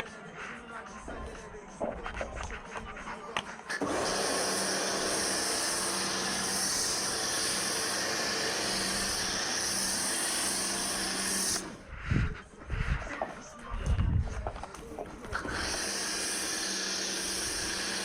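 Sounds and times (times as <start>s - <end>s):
pressure washer spraying: 3.7s - 11.8s, 15.4s - 18.0s.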